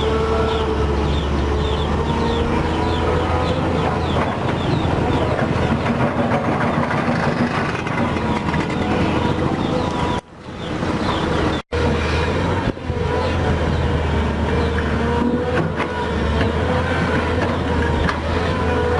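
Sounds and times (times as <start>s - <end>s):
diesel engine running: 0.0s - 18.9s.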